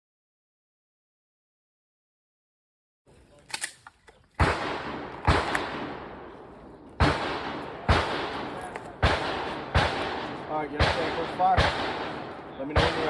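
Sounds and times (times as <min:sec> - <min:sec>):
gunshots with long echo: 0:04.4 - 0:13.0.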